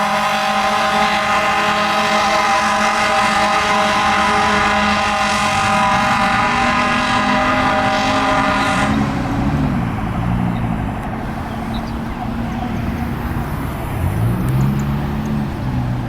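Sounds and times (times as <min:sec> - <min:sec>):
fire truck air horn: 0:00.0 - 0:10.4
truck engine running: 0:00.0 - 0:16.0.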